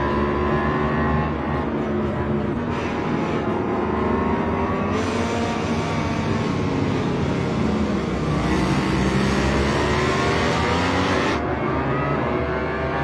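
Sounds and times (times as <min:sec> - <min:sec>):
racing motorcycle engine revving: 0:00.0 - 0:13.0.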